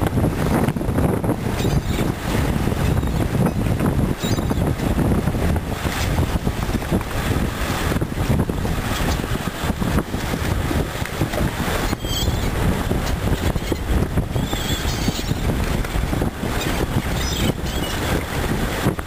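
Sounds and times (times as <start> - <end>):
wind buffeting microphone: 0.0 - 19.0
brief high squeak: 11.9 - 12.5.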